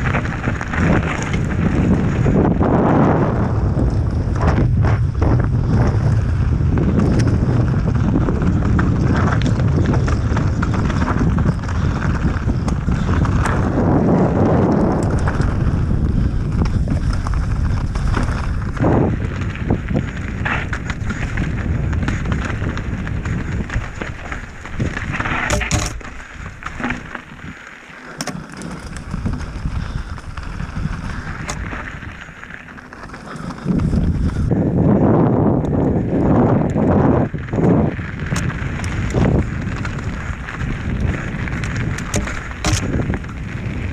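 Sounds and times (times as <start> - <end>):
wind buffeting microphone: 0.0 - 27.6, 28.3 - 43.9
bike rattling over rocks: 0.0 - 43.9
bike tyres rumbling on trail: 0.0 - 43.9.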